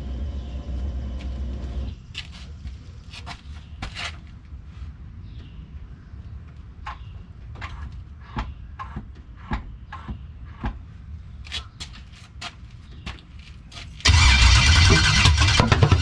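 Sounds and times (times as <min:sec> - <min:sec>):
starter motor cranking engine: 0:14.0 - 0:16.0.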